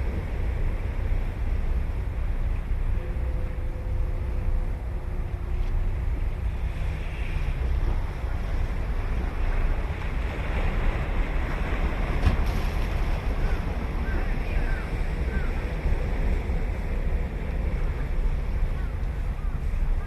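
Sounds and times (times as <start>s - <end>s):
wind buffeting the microphone: 0.0s - 20.0s
surf breaking on a beach: 6.4s - 20.0s.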